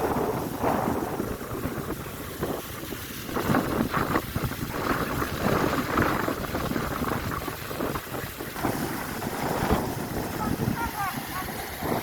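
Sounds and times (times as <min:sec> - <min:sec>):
fountain water splashing: 0:00.0 - 0:12.0
wind buffeting microphone: 0:00.0 - 0:12.0.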